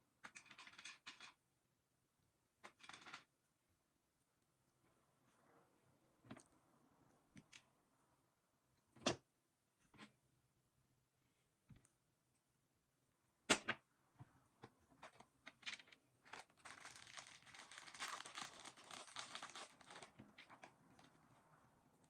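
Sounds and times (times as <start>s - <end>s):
thin material crinkling: 16.2s - 21.4s.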